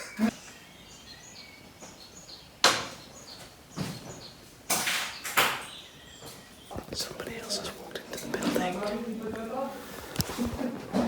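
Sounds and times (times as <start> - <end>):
faint small birds chirping: 0.0 - 7.9
scraping and shuffling: 6.7 - 11.0.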